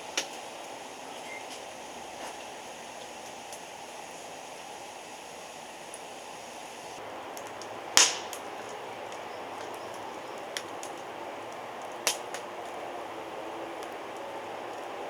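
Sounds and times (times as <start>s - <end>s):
fire hissing: 0.0s - 15.0s
wood fire crackling: 0.0s - 15.0s
sharp pops of fire: 0.1s - 0.5s, 6.8s - 12.8s.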